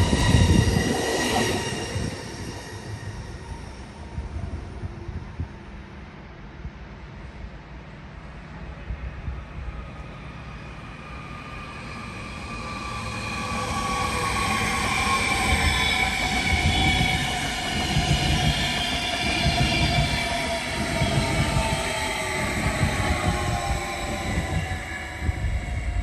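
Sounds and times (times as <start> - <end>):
train rumbling past on rails: 0.0 - 26.0
high whining and squealing tones: 10.6 - 26.0.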